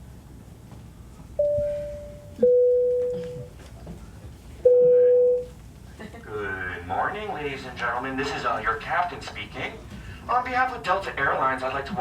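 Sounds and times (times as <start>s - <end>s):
electronic cabin chime dings: 1.4s - 3.5s, 4.6s - 5.5s.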